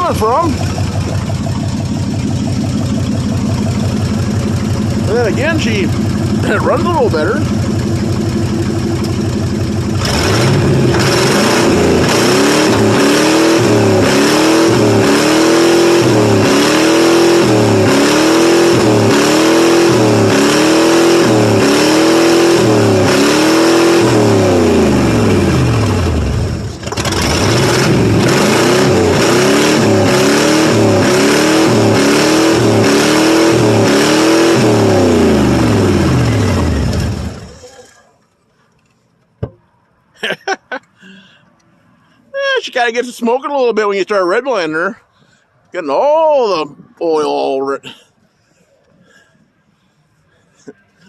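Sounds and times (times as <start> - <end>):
car engine revving: 0.0 - 37.8.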